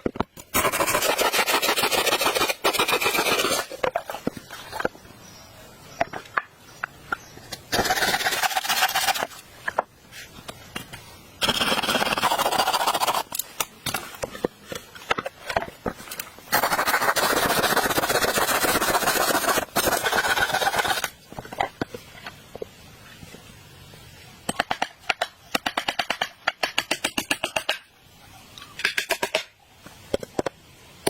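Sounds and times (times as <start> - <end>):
rasping scraping strokes: 0.4 - 4.9.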